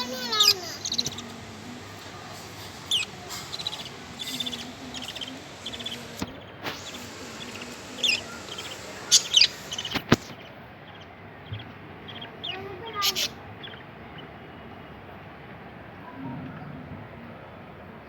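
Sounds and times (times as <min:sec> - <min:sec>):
bird chick chirping: 0:00.0 - 0:13.8.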